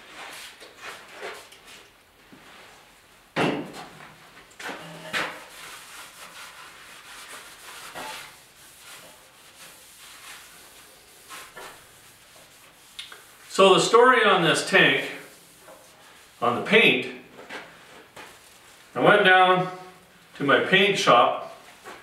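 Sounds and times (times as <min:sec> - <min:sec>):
objects knocking and clunking: 0:03.4 - 0:05.5.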